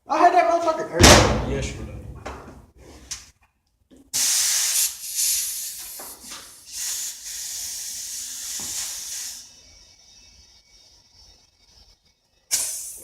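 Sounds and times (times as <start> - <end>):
compressed air hissing: 4.1 - 9.7, 12.5 - 13.0.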